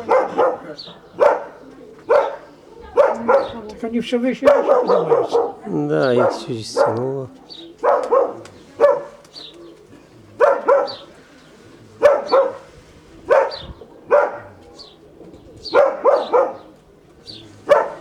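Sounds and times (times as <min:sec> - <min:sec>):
dog barking: 0:00.0 - 0:03.8, 0:04.4 - 0:09.2, 0:10.4 - 0:11.1, 0:12.0 - 0:15.0, 0:15.6 - 0:16.8, 0:17.6 - 0:18.0.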